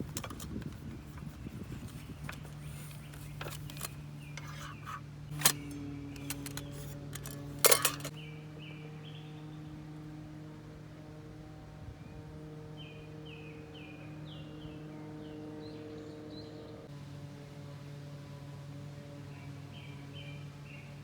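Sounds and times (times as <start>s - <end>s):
metal clatter: 0.0s - 8.2s
light metallic clinks: 2.2s - 8.2s.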